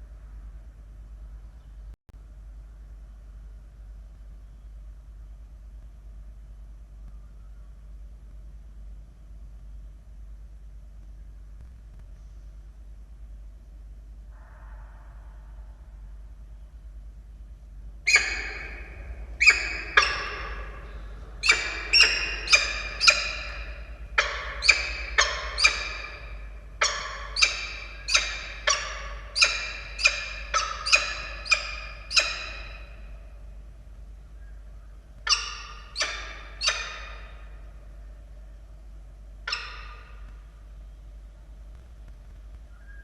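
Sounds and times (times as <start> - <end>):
falcon harsh calls: 18.1 - 33.3, 35.2 - 37.6, 39.5 - 40.4.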